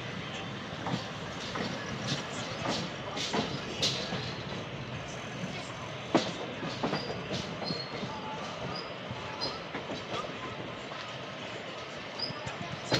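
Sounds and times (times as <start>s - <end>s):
train wheels rumbling on rails: 0.0s - 12.9s
wheels clacking over rail joints: 0.4s - 10.4s.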